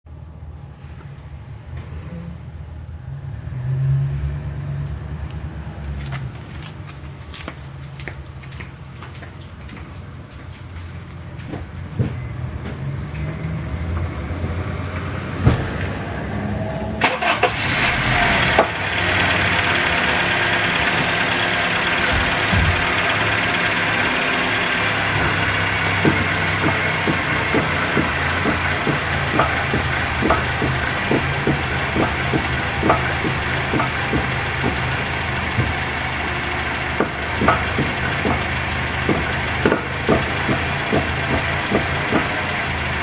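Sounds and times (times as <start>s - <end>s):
car engine running: 17.0s - 43.0s
suspension strut clunking: 17.0s - 43.0s.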